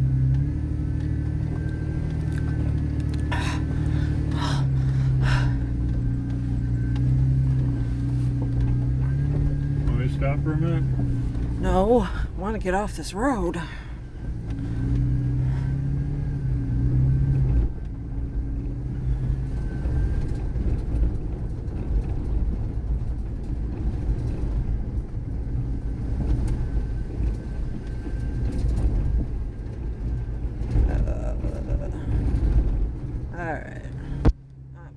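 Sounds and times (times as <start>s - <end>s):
vehicle engine rumble: 0.0s - 34.9s.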